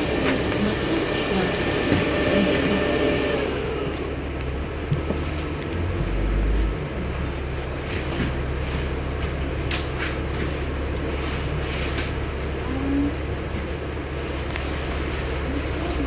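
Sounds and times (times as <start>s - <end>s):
bus engine humming: 0.0s - 16.0s.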